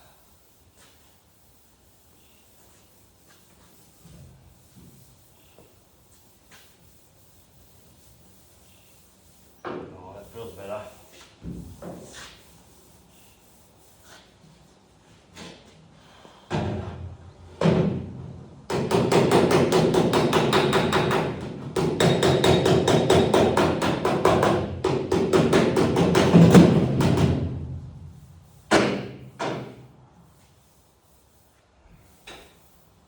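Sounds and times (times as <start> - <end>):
hammer tapping on steel panel: 18.7 - 27.4.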